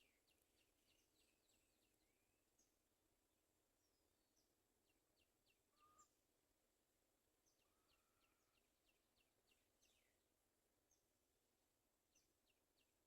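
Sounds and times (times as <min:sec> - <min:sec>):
small birds chirping: 0:00.0 - 0:02.8, 0:07.4 - 0:10.2.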